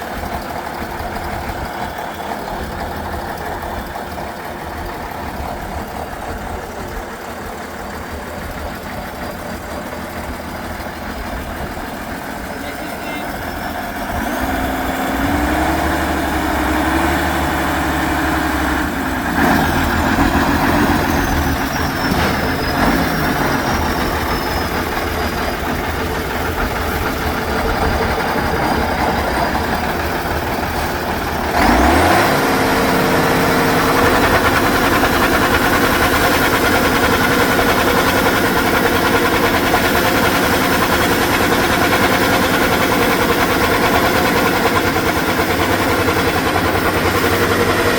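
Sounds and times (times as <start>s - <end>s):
truck engine revving: 0.0s - 47.9s.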